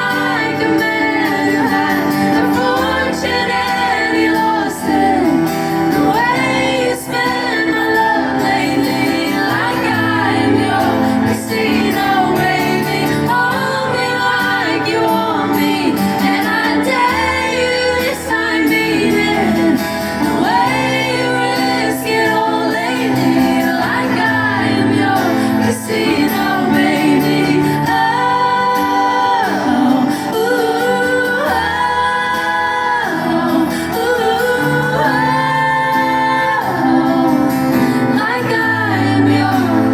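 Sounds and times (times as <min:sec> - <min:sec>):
electric guitar: 0:00.0 - 0:39.9
person singing lead vocal: 0:00.0 - 0:39.9.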